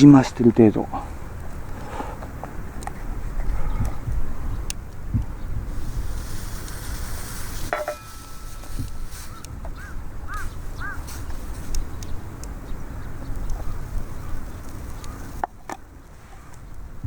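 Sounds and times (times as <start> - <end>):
wind on microphone: 0.6 - 17.0
bird calling: 6.8 - 16.8.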